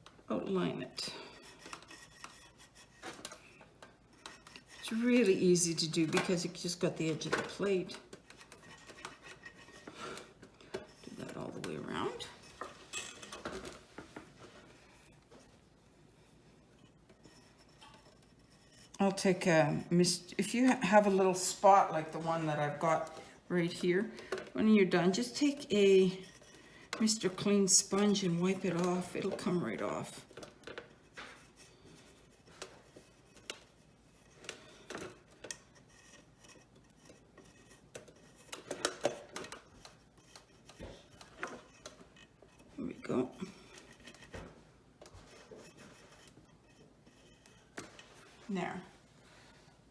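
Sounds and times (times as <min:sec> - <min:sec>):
marker scratching on plate: 0:01.1 - 0:13.4, 0:16.2 - 0:24.1, 0:24.8 - 0:49.9.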